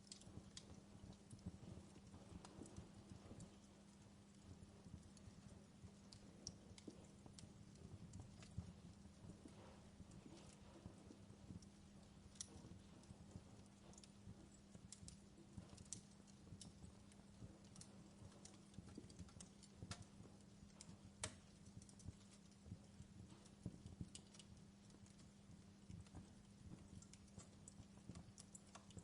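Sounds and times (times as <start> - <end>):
faint steady hum: 0.0 - 29.0
log fire crackling: 0.0 - 29.0.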